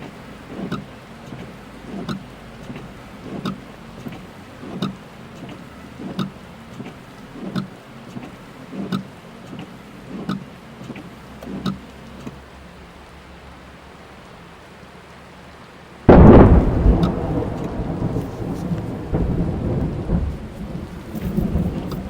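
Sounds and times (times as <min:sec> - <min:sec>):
rain on a car: 0:00.0 - 0:22.0
thunder crash and rumble: 0:16.1 - 0:22.0.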